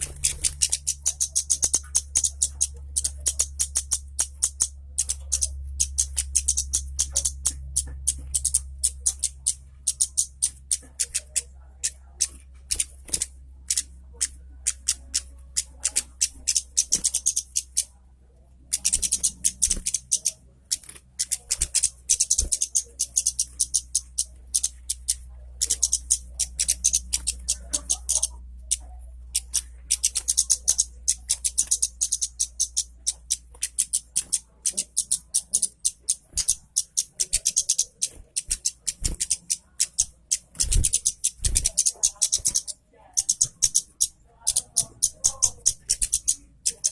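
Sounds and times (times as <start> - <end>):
songbird chips and trills: 0.0 - 18.0, 18.6 - 46.9
steady low hum: 0.0 - 46.9.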